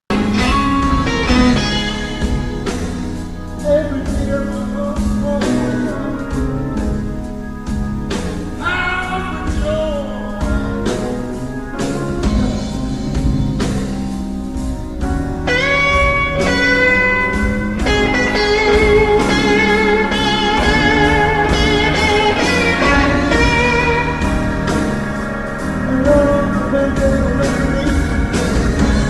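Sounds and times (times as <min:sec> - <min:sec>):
bass and drums: 0:00.0 - 0:29.0
electric guitar solo: 0:00.1 - 0:03.4, 0:15.5 - 0:29.0.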